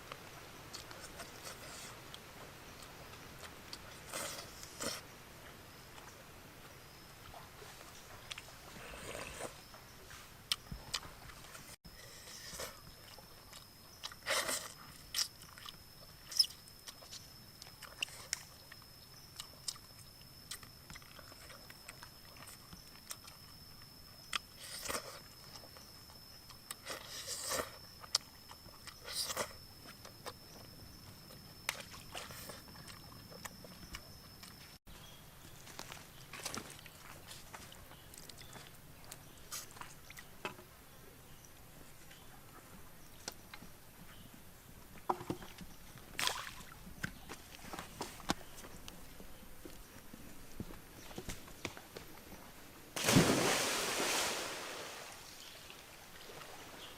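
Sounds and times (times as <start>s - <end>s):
faint high-pitched whine: 0.0s - 56.9s
person chewing and crunching: 10.5s - 23.6s, 26.4s - 30.4s.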